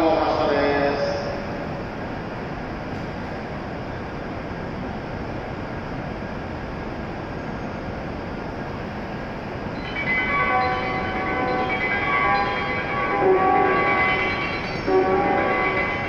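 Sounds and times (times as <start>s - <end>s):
train humming: 0.0s - 16.0s
chiming departure melody: 9.8s - 16.0s.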